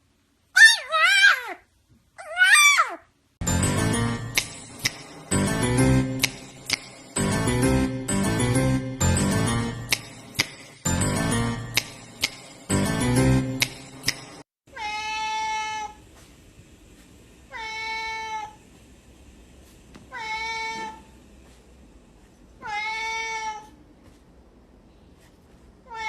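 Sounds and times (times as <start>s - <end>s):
music with sharp clicks: 3.4s - 14.4s
cat meowing: 14.7s - 16.0s, 17.5s - 18.6s, 20.1s - 21.1s, 22.6s - 23.8s.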